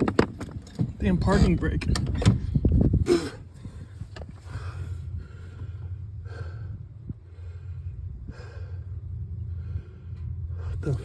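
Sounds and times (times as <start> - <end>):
steady low hum: 0.2 - 11.0
person breathing hard: 3.1 - 10.8.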